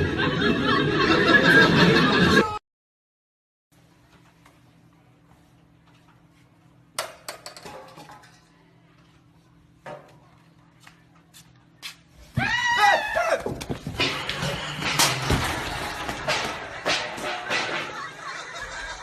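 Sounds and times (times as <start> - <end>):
person crying out: 12.4 - 13.5.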